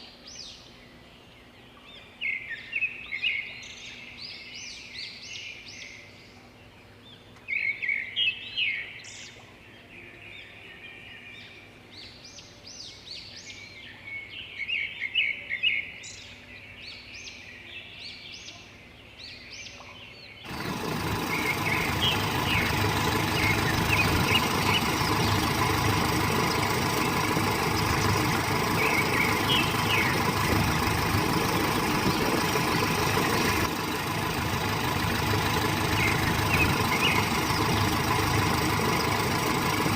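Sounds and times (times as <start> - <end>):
birds chirping: 19.0 - 39.9
truck engine idling: 20.5 - 39.9.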